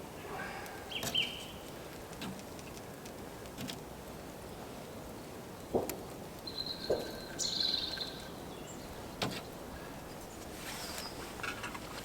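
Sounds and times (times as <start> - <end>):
woodland background noise: 0.0 - 12.0
bird singing: 0.5 - 1.7, 6.4 - 10.4.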